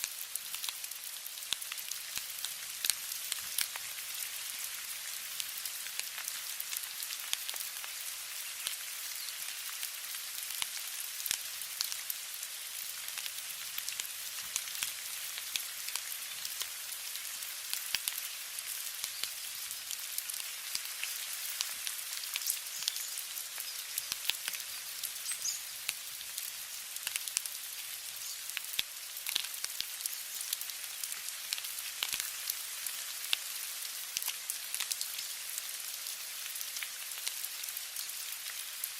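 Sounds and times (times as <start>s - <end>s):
raindrops ticking on a surface: 0.0s - 38.9s
steady rain: 0.0s - 38.9s.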